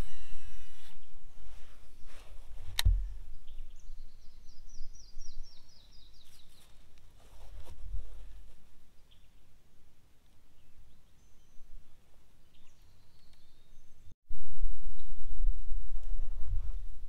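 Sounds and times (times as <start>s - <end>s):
sharp click: 2.8s - 3.2s
bird singing: 2.9s - 6.8s, 10.6s - 11.8s, 12.4s - 14.2s.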